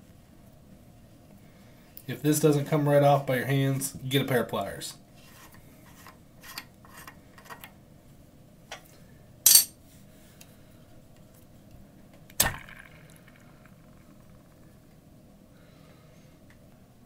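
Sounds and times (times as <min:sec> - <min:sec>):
sharp metal knock with ring: 0:09.5 - 0:09.7.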